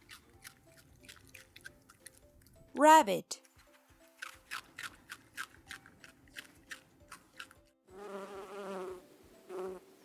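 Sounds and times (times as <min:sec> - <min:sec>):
rabbit crunching food: 0:04.2 - 0:07.6
bee buzzing: 0:07.9 - 0:10.0.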